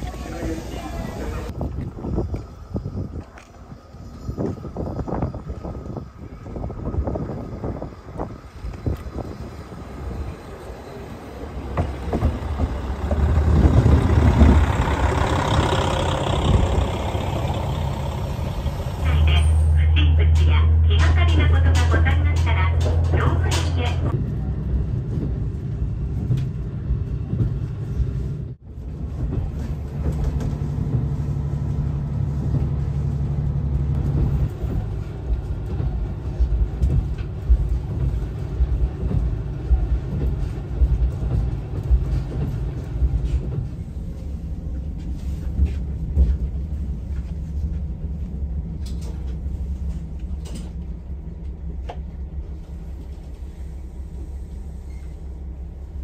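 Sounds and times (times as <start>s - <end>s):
train wheels rumbling on rails: 0.0s - 56.0s
diesel engine drone: 11.3s - 56.0s.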